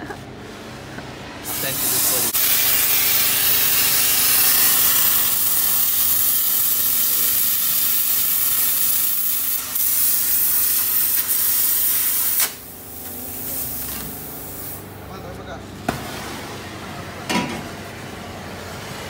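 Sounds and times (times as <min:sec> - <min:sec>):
cutting torch hissing: 0:01.5 - 0:14.9.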